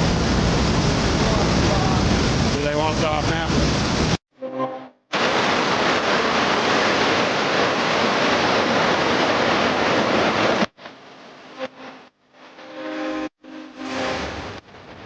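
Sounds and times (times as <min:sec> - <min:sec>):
floodwater rushing: 0:05.1 - 0:15.0.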